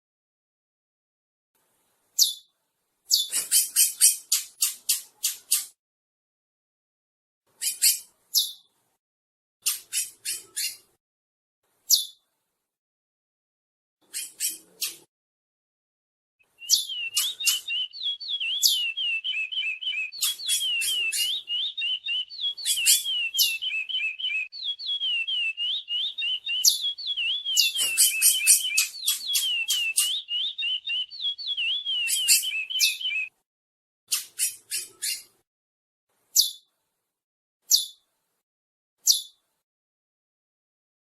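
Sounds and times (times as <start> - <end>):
finch singing whistled notes: 16.4 - 33.3
bird chips: 16.6 - 33.3.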